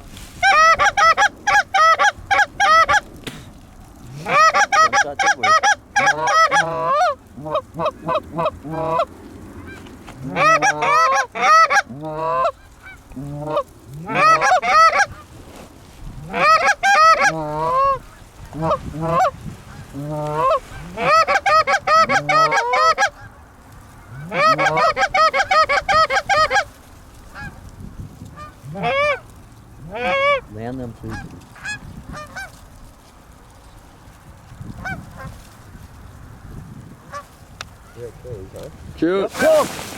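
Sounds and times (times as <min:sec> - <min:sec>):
goose honking: 0:00.4 - 0:03.0, 0:04.1 - 0:15.3, 0:16.2 - 0:23.3, 0:24.0 - 0:26.7, 0:28.4 - 0:29.2, 0:29.8 - 0:30.5, 0:31.1 - 0:32.6.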